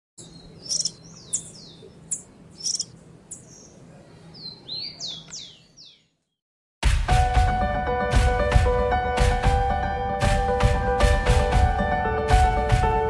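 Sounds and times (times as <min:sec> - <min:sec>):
bird chirping and whistling: 0:00.2 - 0:03.7, 0:04.4 - 0:06.1.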